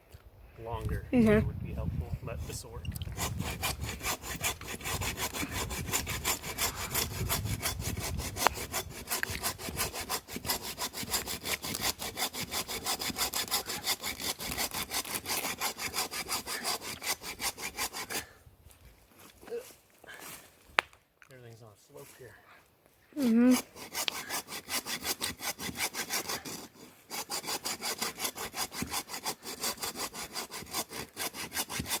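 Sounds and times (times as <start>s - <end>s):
hand saw cutting wood: 3.1s - 18.3s, 23.2s - 32.0s.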